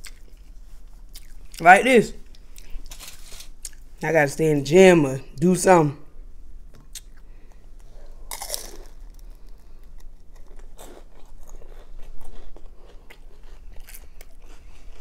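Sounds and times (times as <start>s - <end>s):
crunching spring roll: 2.6s - 3.8s, 8.2s - 14.8s.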